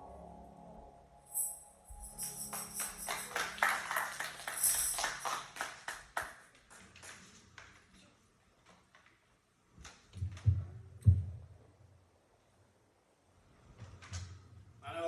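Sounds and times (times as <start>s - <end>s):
held chord: 0.0s - 5.3s
tambourine jingling: 1.3s - 5.8s.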